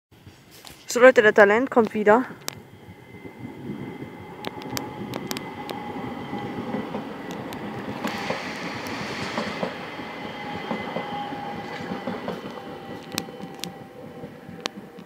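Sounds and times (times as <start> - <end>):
train wheels rumbling on rail: 1.7 - 15.0
wheels clicking over rail joints: 4.4 - 9.8, 10.7 - 15.0.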